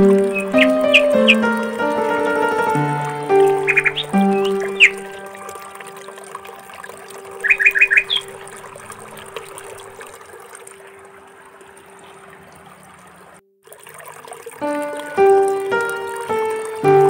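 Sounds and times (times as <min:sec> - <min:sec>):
bird chirping: 0:00.0 - 0:05.9, 0:07.3 - 0:09.7.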